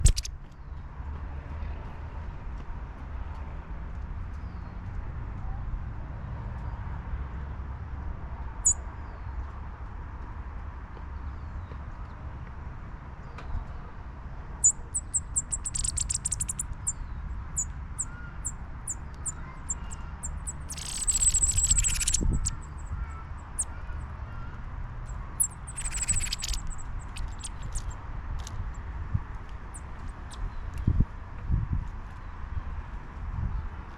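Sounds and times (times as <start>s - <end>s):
sparrows chip calls: 0.0s - 0.3s, 14.6s - 23.9s, 25.1s - 28.0s.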